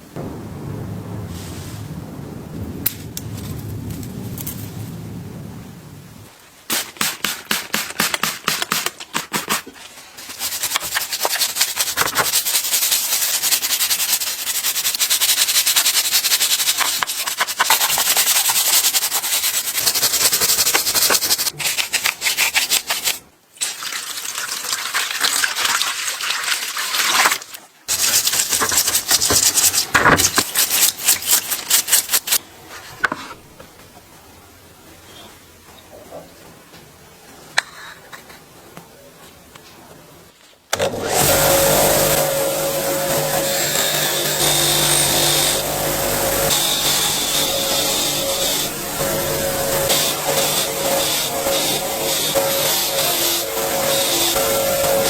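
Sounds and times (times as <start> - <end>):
hard scraping and rubbing: 7.1 - 23.3, 27.0 - 33.4, 41.2 - 55.0.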